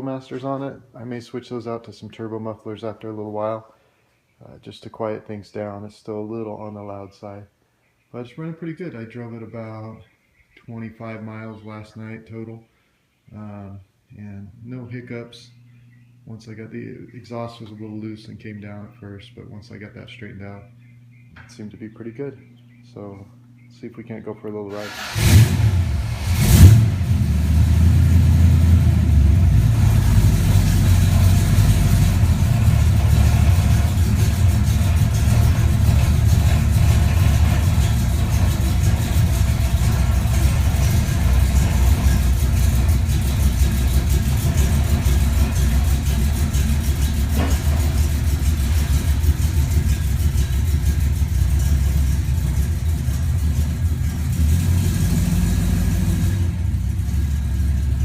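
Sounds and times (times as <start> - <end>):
car engine and exhaust rumble: 24.8 - 58.0
sharp thump: 47.3 - 48.0.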